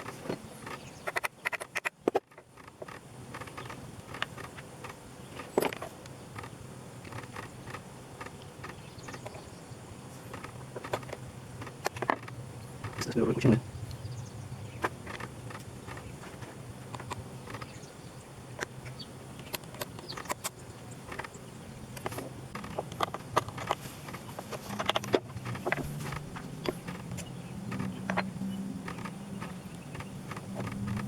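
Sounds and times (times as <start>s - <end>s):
clicks and taps of tools: 0.0s - 9.4s, 10.3s - 13.2s, 19.4s - 31.0s
steady low hum: 0.0s - 31.0s.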